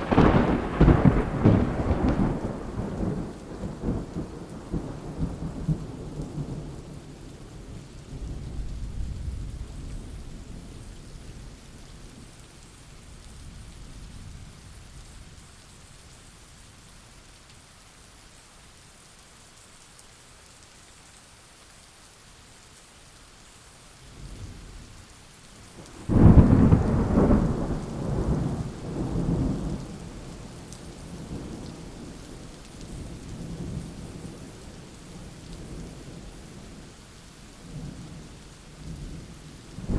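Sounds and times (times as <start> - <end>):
loud thunderclap: 0.0 - 5.8, 25.8 - 30.0
thunder rumbling: 0.0 - 7.1, 25.8 - 36.2, 38.8 - 39.9
steady rain: 0.0 - 39.9.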